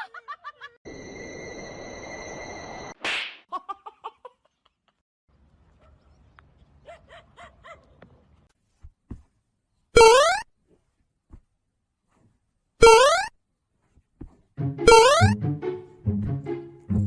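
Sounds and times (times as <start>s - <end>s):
rising whistle-like tone: 0.9s - 3.0s.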